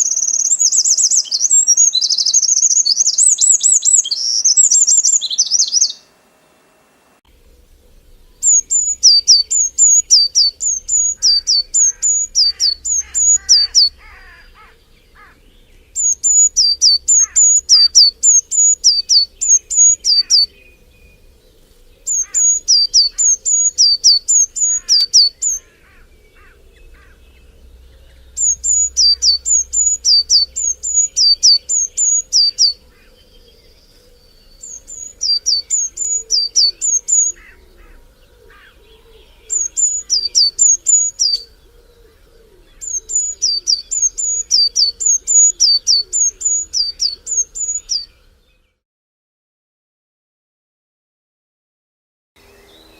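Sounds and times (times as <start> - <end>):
faint bird calls: 0.0 - 6.2, 7.3 - 48.8
songbird singing two-note phrase: 22.0 - 41.6.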